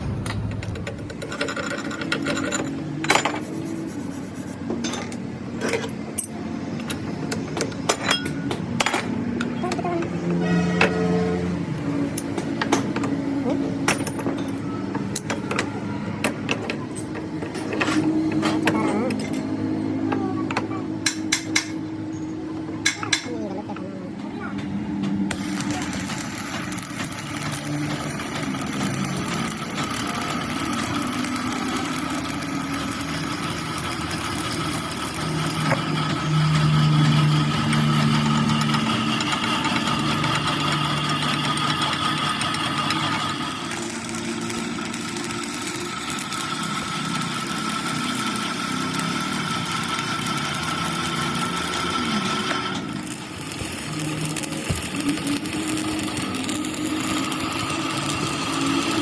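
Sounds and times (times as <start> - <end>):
metal lathe motor drone: 0.9 - 59.0.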